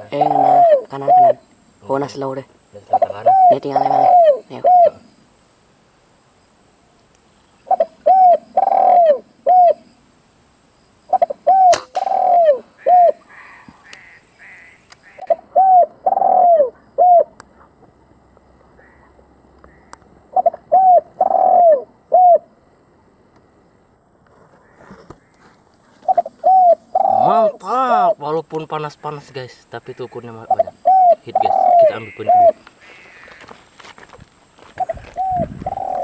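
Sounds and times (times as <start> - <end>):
dove cooing: 0.0 - 1.4, 2.8 - 5.1, 7.6 - 9.9, 11.1 - 17.7, 18.8 - 22.6, 25.9 - 28.2, 30.3 - 33.5, 34.8 - 36.0
sharp click: 11.7 - 12.1.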